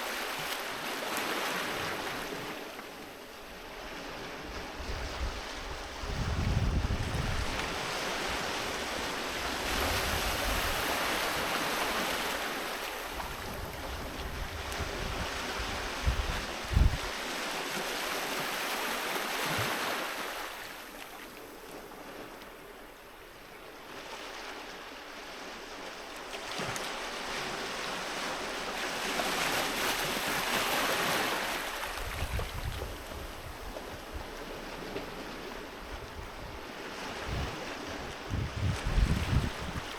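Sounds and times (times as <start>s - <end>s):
sea waves washing onto beach: 0.0s - 23.1s, 23.7s - 39.9s
wind buffeting microphone: 4.4s - 11.0s, 13.2s - 17.2s, 31.9s - 39.9s.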